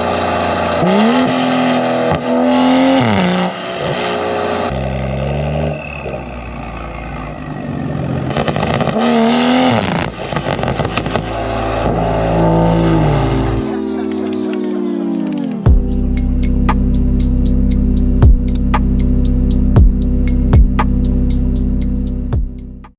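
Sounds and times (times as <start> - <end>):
car engine revving: 0.0 - 22.9
exhaust crackles and pops: 3.8 - 22.0.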